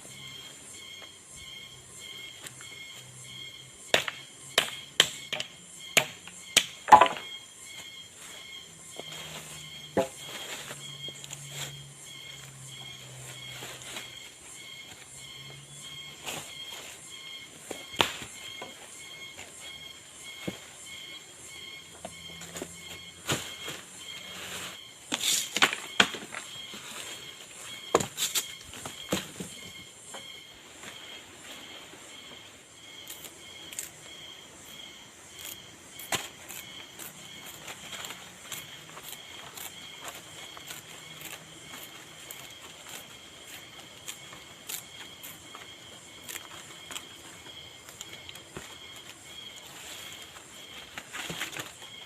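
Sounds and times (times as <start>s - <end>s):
high-pitched insect chirring: 0.0s - 31.2s, 32.1s - 50.8s
sharp knocks and cracks: 3.9s - 7.4s.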